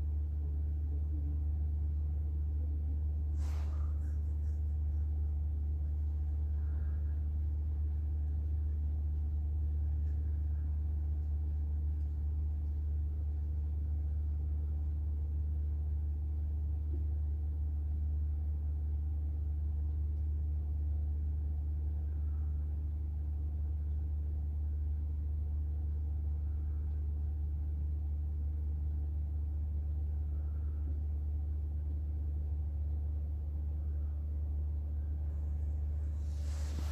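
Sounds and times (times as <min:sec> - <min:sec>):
faint soft sounds: 0:00.0 - 0:36.9
steady low hum: 0:00.0 - 0:36.9.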